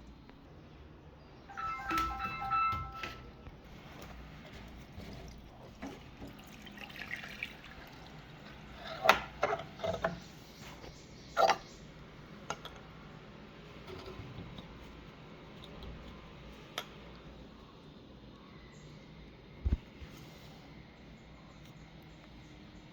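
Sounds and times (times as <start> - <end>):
water trickling and dripping: 4.7 - 9.1.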